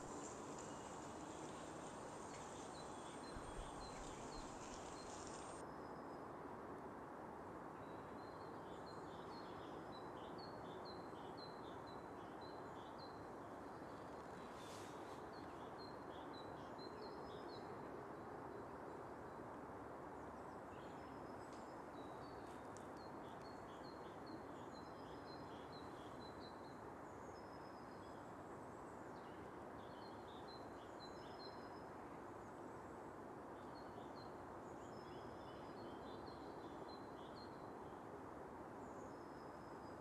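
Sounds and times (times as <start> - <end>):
small birds chirping: 0.0 - 5.6
steady background noise: 0.0 - 8.8.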